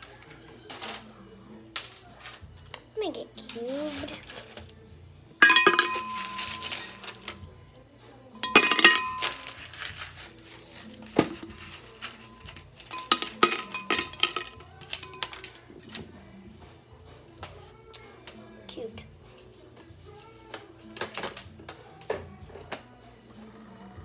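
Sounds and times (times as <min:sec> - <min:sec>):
ice cubes clattering onto a plate: 0:05.4 - 0:07.4, 0:08.4 - 0:10.3, 0:10.9 - 0:16.0.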